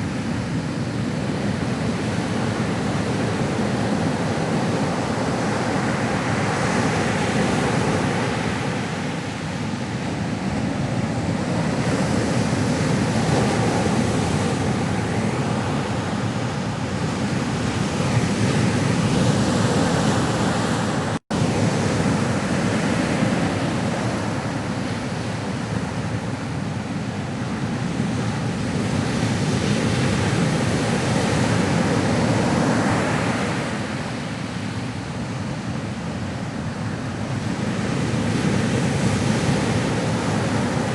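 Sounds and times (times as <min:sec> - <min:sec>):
ocean waves: 0:00.0 - 0:40.9.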